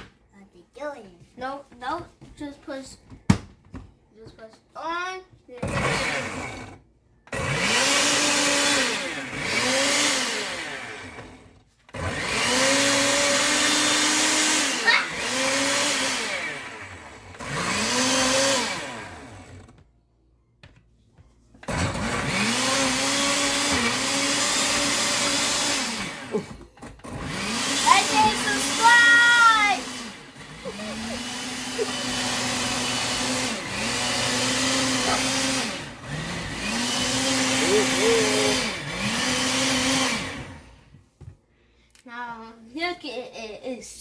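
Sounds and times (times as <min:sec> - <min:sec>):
blender motor: 0:05.6 - 0:19.8, 0:21.6 - 0:40.9.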